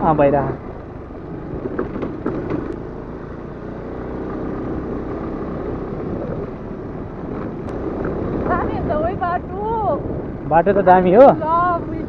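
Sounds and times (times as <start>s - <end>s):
scooter engine running: 0.0s - 12.0s.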